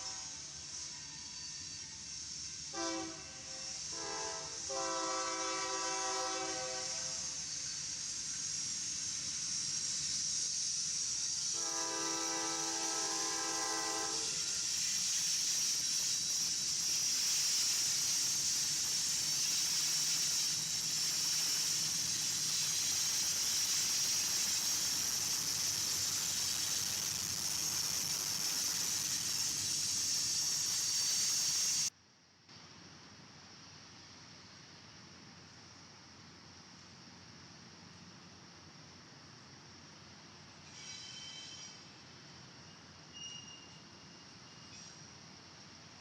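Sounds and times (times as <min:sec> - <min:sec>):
train rolling on rails: 0:00.0 - 0:31.9, 0:37.0 - 0:46.0
train horn chord: 0:02.8 - 0:07.1, 0:11.6 - 0:14.4.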